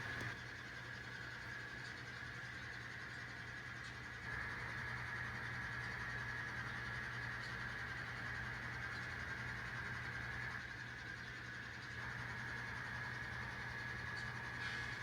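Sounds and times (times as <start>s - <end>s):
model locomotive high whine: 0.0s - 15.0s
model locomotive low hum: 0.0s - 15.0s.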